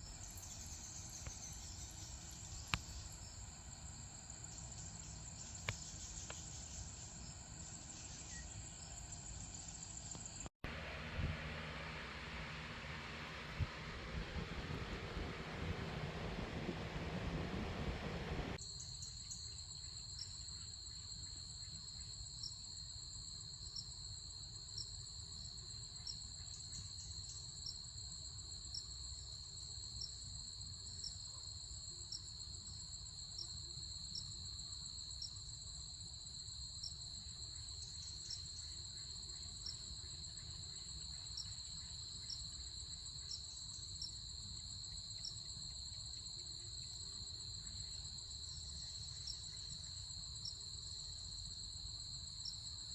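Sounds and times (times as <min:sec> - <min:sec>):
crickets chirring: 0:00.0 - 0:10.5, 0:11.7 - 0:52.9
low background rumble: 0:00.0 - 0:18.6.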